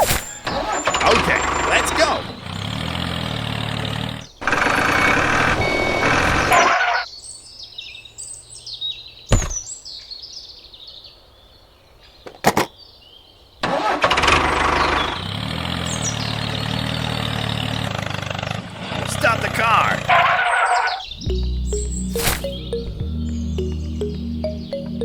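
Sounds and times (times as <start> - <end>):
tractor engine running: 0.0 - 7.0, 13.6 - 20.5
birds chirping: 0.0 - 25.0.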